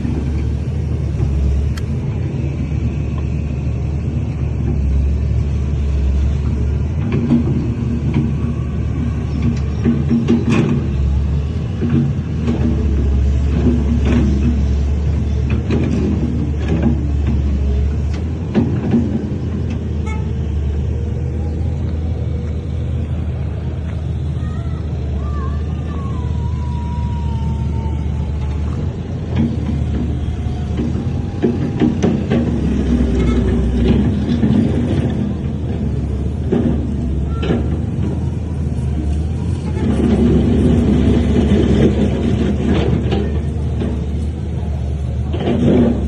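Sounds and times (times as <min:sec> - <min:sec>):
heavy diesel machinery droning: 0:00.0 - 0:46.0
metallic clanks and knocks: 0:28.4 - 0:38.6.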